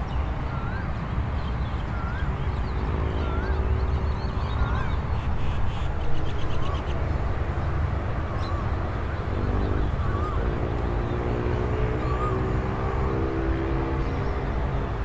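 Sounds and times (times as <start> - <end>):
bird warbling call: 9.9 - 10.4.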